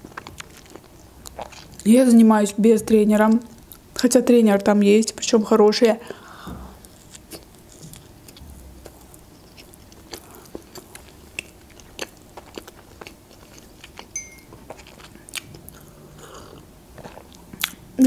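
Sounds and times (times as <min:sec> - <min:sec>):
person chewing: 0:00.0 - 0:01.8, 0:06.8 - 0:17.8.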